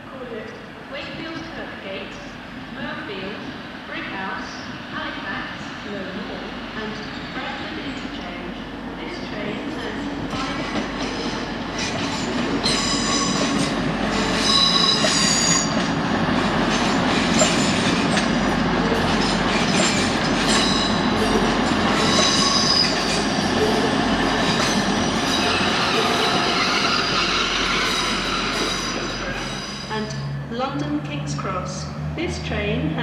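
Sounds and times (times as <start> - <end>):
train wheels rumbling on track: 0.5 - 33.0
high-pitched metallic squeals: 14.2 - 15.8, 20.5 - 23.9, 24.5 - 30.4.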